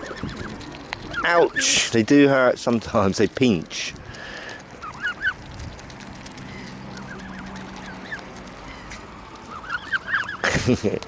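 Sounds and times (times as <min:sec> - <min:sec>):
chicks peeping: 0:04.6 - 0:10.5.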